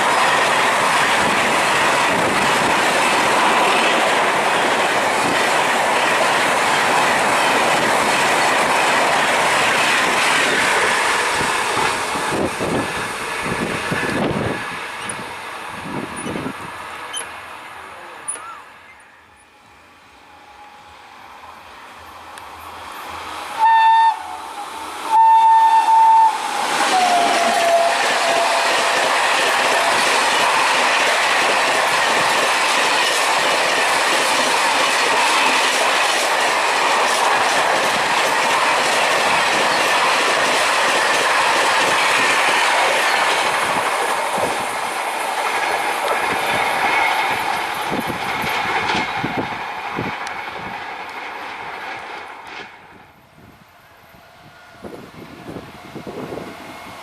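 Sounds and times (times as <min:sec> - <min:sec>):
train wheels clattering on track: 0:00.0 - 0:18.6, 0:24.9 - 0:53.1
train horn blasts: 0:23.5 - 0:29.1.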